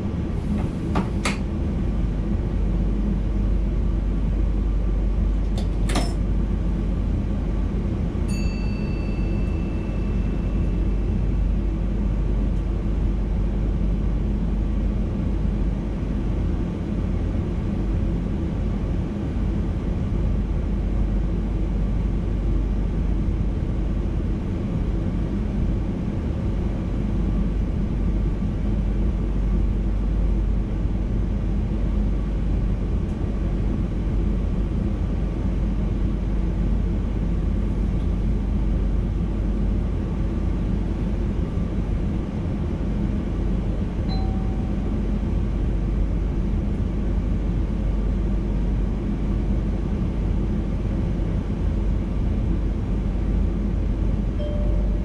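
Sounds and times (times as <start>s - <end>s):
electric train rumble and hum: 0.0s - 55.0s
short high tone: 44.1s - 45.0s, 54.4s - 55.0s.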